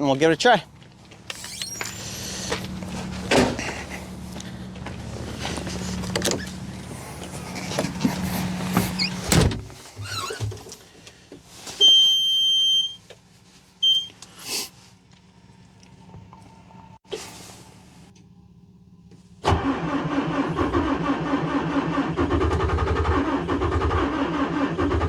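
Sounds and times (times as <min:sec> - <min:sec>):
steady low hum: 0:00.6 - 0:09.9
thumps and clunks climbing into cab: 0:01.2 - 0:10.8.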